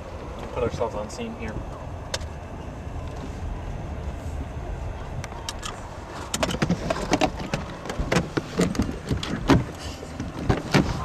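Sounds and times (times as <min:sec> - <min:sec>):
car engine rumbling: 0:00.0 - 0:11.0
sharp clicks and knocks: 0:05.5 - 0:11.0.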